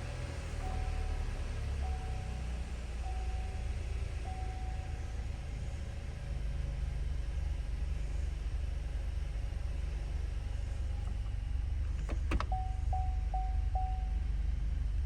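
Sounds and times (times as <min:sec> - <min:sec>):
car engine idling: 0:00.0 - 0:15.0
car warning chime beeping: 0:00.6 - 0:05.4, 0:12.3 - 0:14.3.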